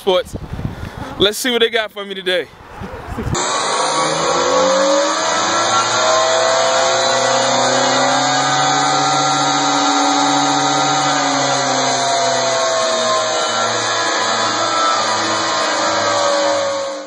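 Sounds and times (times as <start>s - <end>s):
toy truck motor whining: 3.4s - 17.0s.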